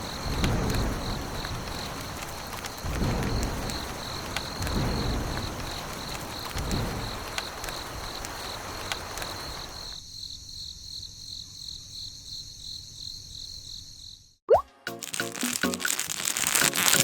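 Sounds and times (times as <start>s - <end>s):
background hiss: 0.0s - 10.0s.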